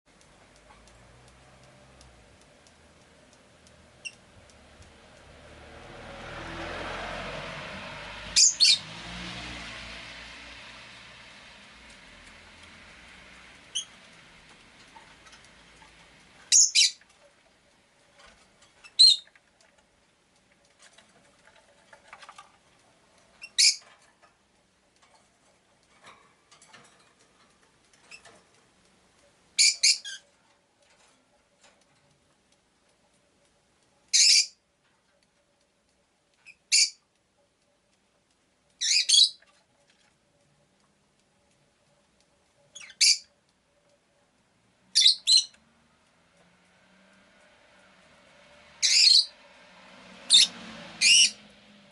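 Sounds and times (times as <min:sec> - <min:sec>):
faint street noise hiss: 0:00.1 - 0:51.9
lovebird shrill chirps: 0:08.4 - 0:08.8, 0:13.7 - 0:13.9, 0:16.5 - 0:17.0, 0:18.8 - 0:19.3, 0:23.4 - 0:23.8, 0:29.6 - 0:30.2, 0:34.1 - 0:34.6, 0:36.5 - 0:37.0, 0:38.8 - 0:39.4, 0:42.8 - 0:43.3, 0:44.9 - 0:45.6, 0:48.8 - 0:49.3, 0:50.3 - 0:51.4.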